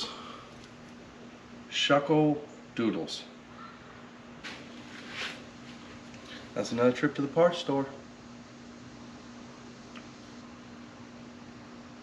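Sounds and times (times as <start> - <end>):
faint hum: 0.0 - 12.0
small click: 9.9 - 10.1.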